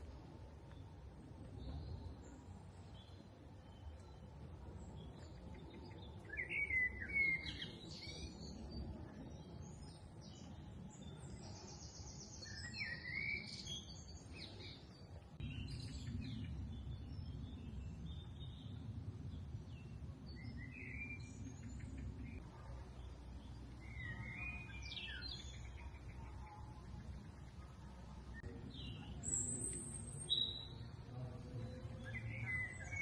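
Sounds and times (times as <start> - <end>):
birds chirping and warbling: 0.0 - 33.0
steady low rumble: 14.1 - 33.0.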